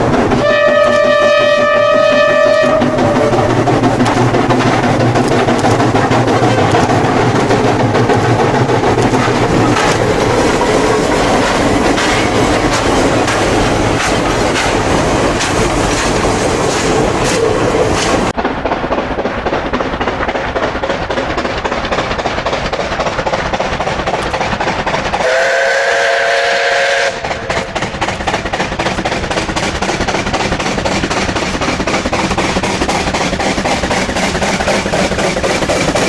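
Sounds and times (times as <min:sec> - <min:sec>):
steam locomotive running: 0:00.0 - 0:36.0
steam whistle: 0:00.4 - 0:03.5, 0:25.2 - 0:27.3.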